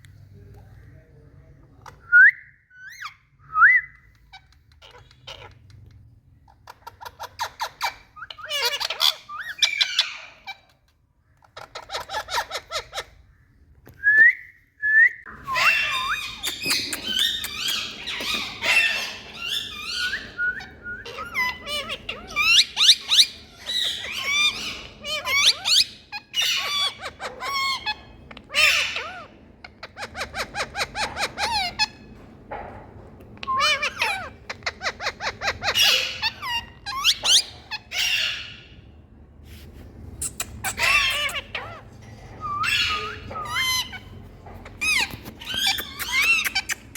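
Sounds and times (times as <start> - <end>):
parrot squawks: 15.4 - 29.3, 33.5 - 38.8, 40.2 - 46.9
parrot chattering trills: 15.5 - 32.1, 33.4 - 38.8, 40.2 - 46.9.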